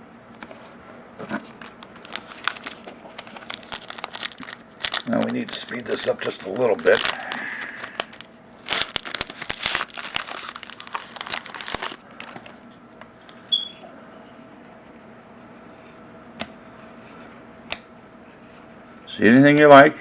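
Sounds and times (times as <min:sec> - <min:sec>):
foil wrapper crinkling and tearing: 0:01.5 - 0:12.6.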